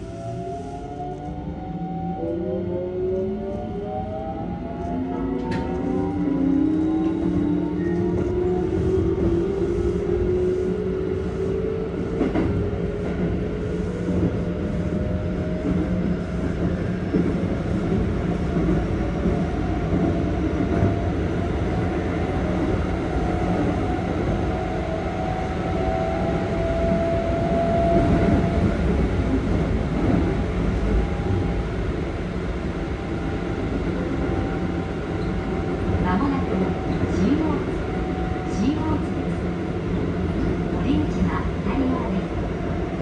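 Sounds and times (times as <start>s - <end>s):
wheels rumbling on rail: 0.0s - 43.0s.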